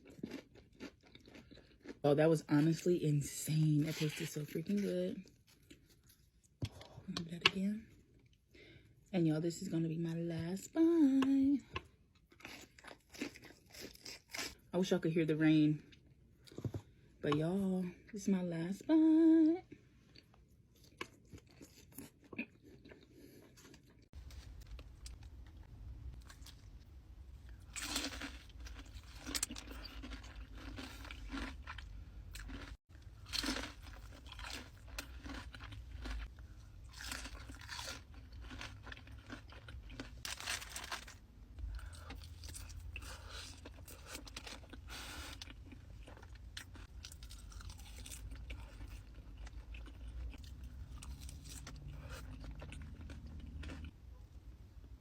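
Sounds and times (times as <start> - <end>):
crunching and chewing crispy food: 0.0 - 2.9, 3.8 - 7.0, 11.6 - 14.7, 20.0 - 26.8, 27.4 - 54.0.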